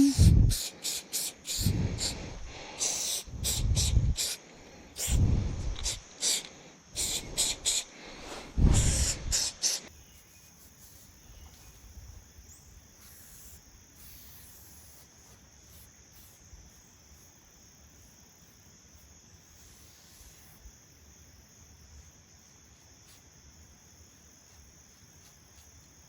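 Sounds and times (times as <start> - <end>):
short loud hissing bursts: 0.0 - 9.9, 12.9 - 16.8, 19.4 - 20.7
insects chirring: 0.0 - 26.0.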